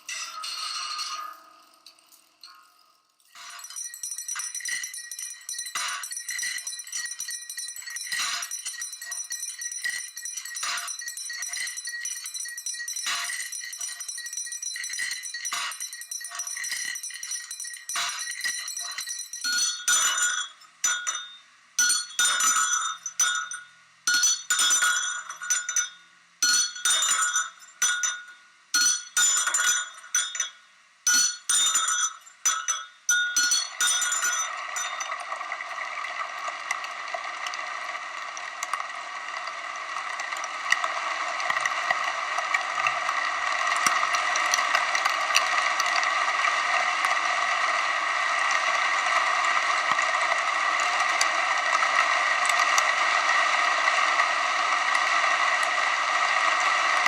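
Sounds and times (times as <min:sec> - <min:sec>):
glassy metallic clinking: 0:00.1 - 0:37.6
dense rattle of small motors: 0:31.3 - 0:57.0.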